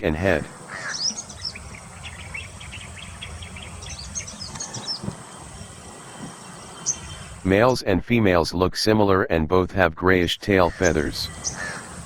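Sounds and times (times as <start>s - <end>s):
birds chirping: 0.0s - 8.4s, 10.0s - 12.0s
low outdoor rumble: 0.0s - 12.0s.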